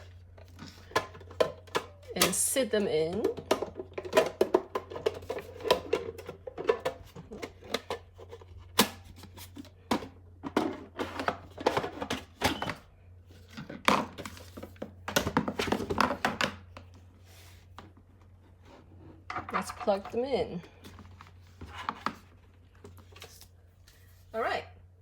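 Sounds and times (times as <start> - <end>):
plastic parts clicking and knocking: 3.1 - 12.8, 13.5 - 16.9.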